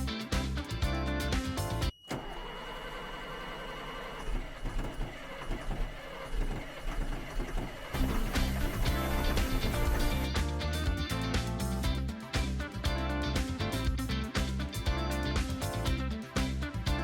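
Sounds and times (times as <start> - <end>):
starter motor whirring: 2.1 - 10.3
diesel engine rumbling: 4.4 - 16.9.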